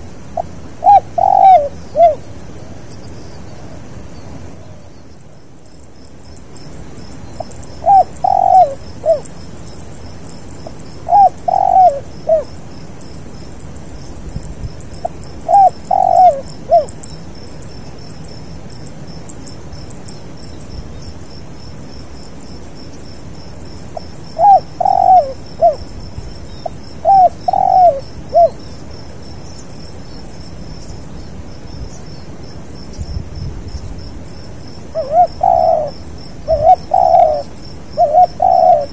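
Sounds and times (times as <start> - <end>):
pulsing insect trill: 0.0 - 38.9
dove cooing: 0.4 - 2.3, 7.4 - 9.3, 10.6 - 12.6, 15.0 - 17.0, 24.0 - 25.9, 26.6 - 28.6, 34.9 - 38.9.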